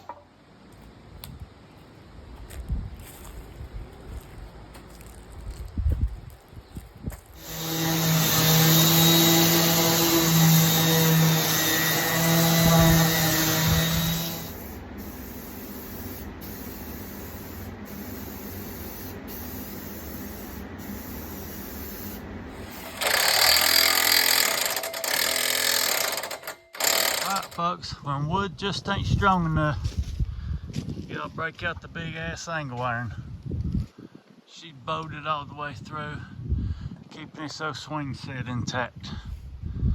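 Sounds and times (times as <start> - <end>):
power drill boring through wood: 7.4 - 14.8, 22.5 - 27.6
steady hum: 7.4 - 27.6
noisy power tool burst: 7.4 - 27.7.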